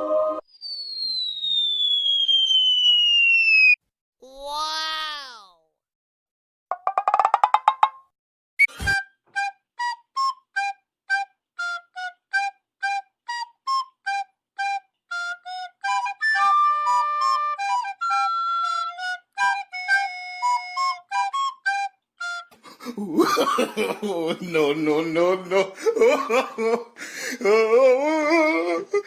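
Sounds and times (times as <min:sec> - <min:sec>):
comedic flute melody: 0:08.6 - 0:22.7.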